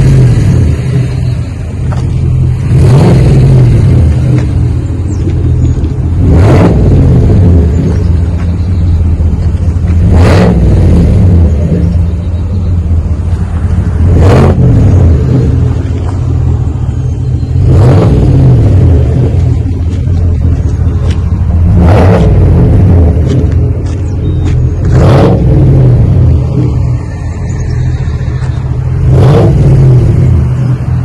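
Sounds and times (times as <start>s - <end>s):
engine idling: 0.0s - 31.0s
engine revving: 0.0s - 31.0s.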